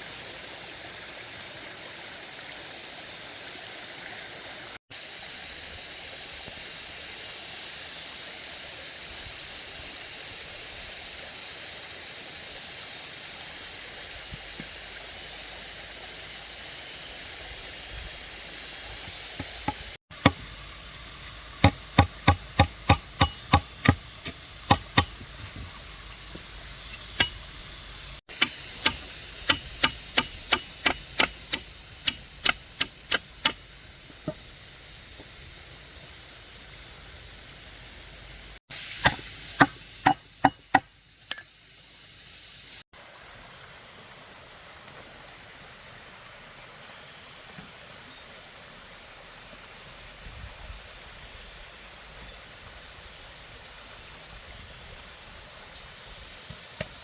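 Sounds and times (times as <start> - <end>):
steady hiss: 0.0 - 57.0
hand tool striking: 19.4 - 20.6, 21.5 - 27.5, 28.3 - 33.6, 39.0 - 41.5.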